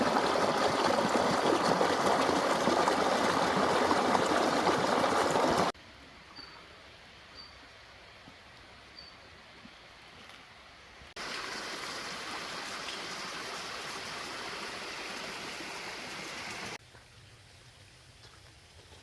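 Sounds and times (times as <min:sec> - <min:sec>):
rushing water: 0:00.0 - 0:05.8, 0:11.2 - 0:16.8.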